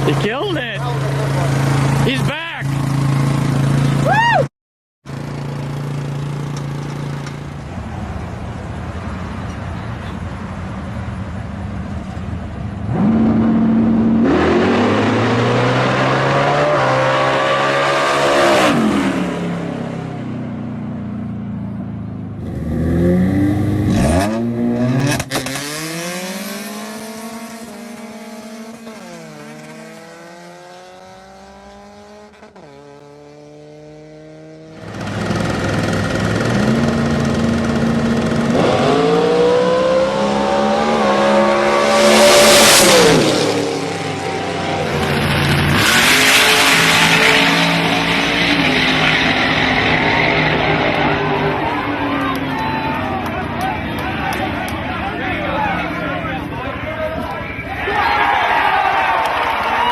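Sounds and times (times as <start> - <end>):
drag racing car engines accelerating: 12.8 - 20.2, 22.4 - 57.7.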